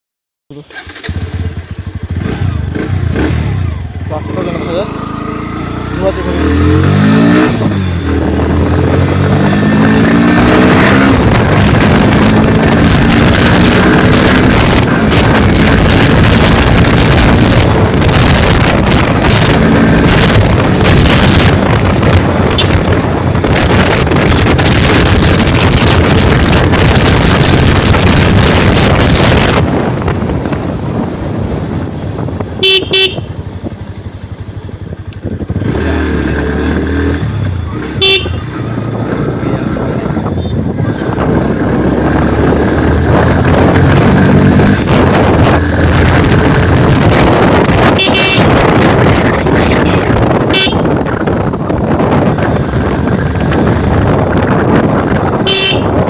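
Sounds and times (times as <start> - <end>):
engine and road noise rushing: 0.5 - 56.0
motorcycle engine revving: 0.5 - 56.0
vehicle horn toots: 22.4 - 23.0, 32.6 - 33.4, 37.8 - 38.6, 47.8 - 48.9, 49.6 - 51.1, 55.4 - 56.0.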